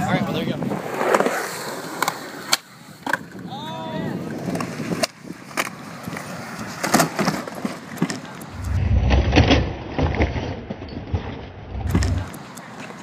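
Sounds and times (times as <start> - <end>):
skateboard clacking on concrete: 4.2 - 10.2, 11.9 - 13.0
wind buffeting microphone: 8.4 - 9.5, 11.7 - 12.4.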